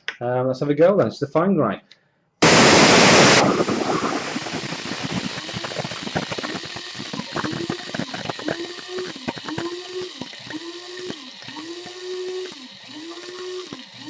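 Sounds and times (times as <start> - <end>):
coffee grinder grinding beans: 2.4 - 14.0
grounds rattling against bowl: 3.7 - 14.0.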